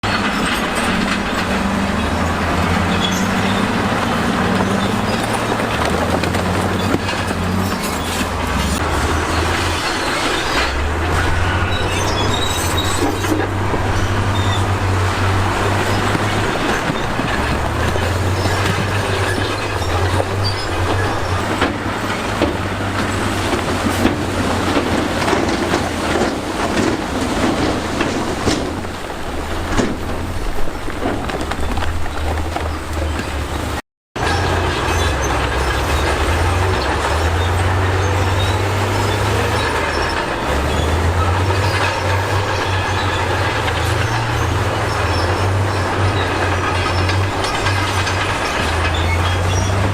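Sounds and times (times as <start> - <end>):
diesel engine droning: 0.0 - 49.9
steel tracks clanking: 0.0 - 49.9.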